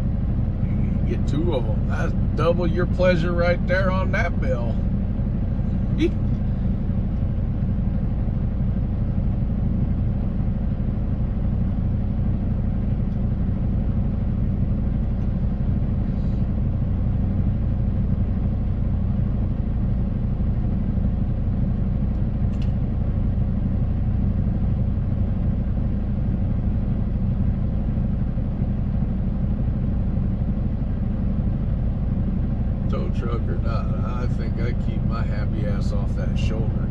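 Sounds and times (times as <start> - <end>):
road noise: 0.0 - 19.8, 28.3 - 36.9
diesel engine drone: 0.0 - 36.9.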